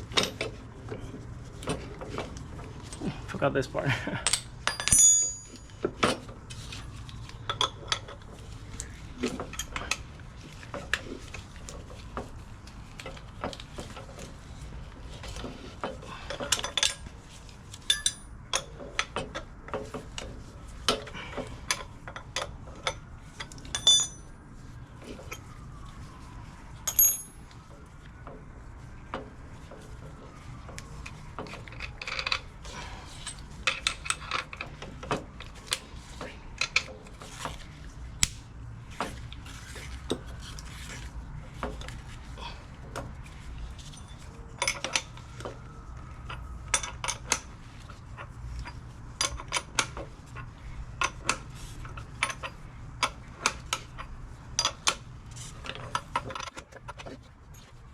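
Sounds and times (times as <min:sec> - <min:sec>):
metal tools clinking: 0:04.0 - 0:05.8, 0:17.8 - 0:18.7, 0:23.7 - 0:24.3, 0:26.9 - 0:27.4
ringing metallic hits: 0:04.7 - 0:05.6, 0:23.8 - 0:24.2, 0:26.9 - 0:27.4.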